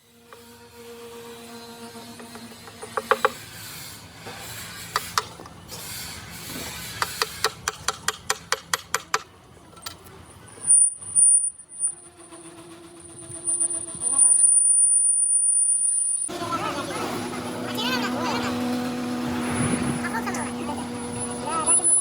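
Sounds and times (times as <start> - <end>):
thin high whine: 10.6 - 22.0.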